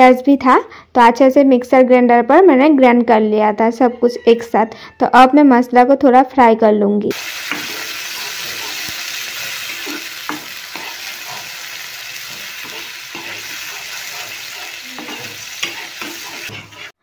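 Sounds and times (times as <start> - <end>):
paste sizzling in hot oil: 7.1 - 17.0
spatula stirring and scraping: 7.1 - 17.0.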